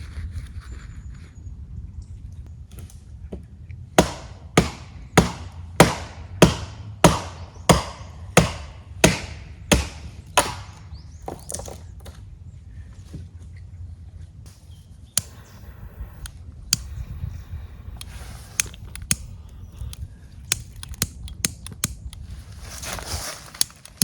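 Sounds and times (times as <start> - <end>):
axe chopping wood: 4.0 - 11.8.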